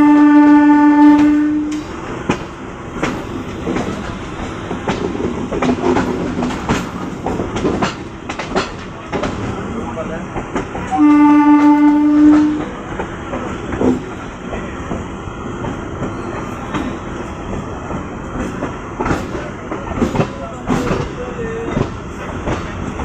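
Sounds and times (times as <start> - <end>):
train horn: 0.0 - 1.9, 10.9 - 12.8
electric train moving: 0.0 - 23.0
train wheels clicking over rail joints: 0.4 - 23.0.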